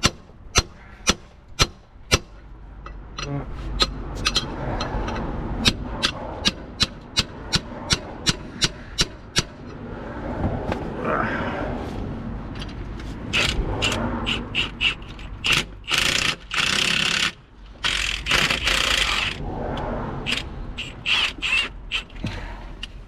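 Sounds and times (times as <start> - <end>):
ratchet wrench clicking: 2.1 - 9.8, 13.3 - 19.4, 20.2 - 22.2.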